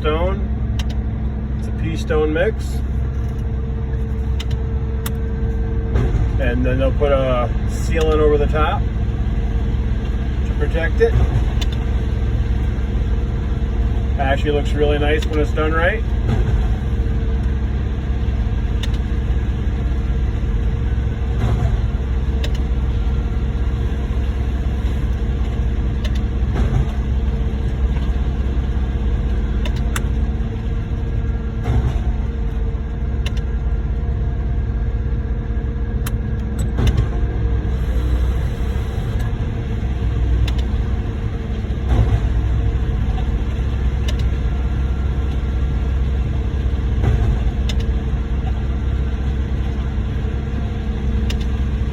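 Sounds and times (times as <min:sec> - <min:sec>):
concrete pump engine rumble: 0:00.0 - 0:51.9
pump knocking: 0:16.0 - 0:17.9, 0:21.2 - 0:30.2, 0:30.8 - 0:33.8, 0:40.4 - 0:50.2.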